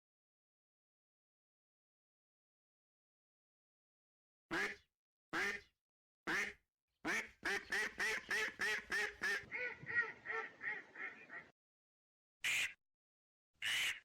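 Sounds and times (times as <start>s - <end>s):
duck quacking: 4.5s - 4.8s, 5.4s - 5.7s, 6.3s - 11.5s, 12.4s - 12.8s, 13.6s - 14.0s.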